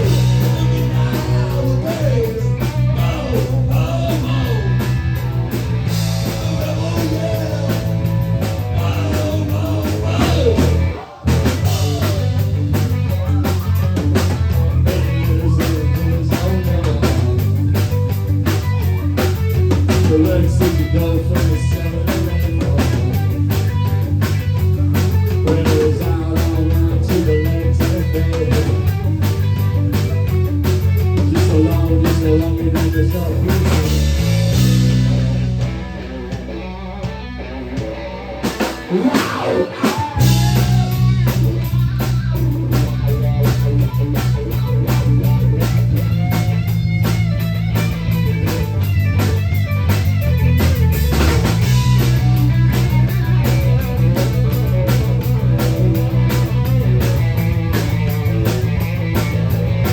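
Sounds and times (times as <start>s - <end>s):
person singing: 0.0s - 5.1s, 6.2s - 14.0s, 38.9s - 41.3s
bass guitar: 0.0s - 59.9s
drum kit: 0.0s - 59.9s
electric guitar: 0.0s - 59.9s.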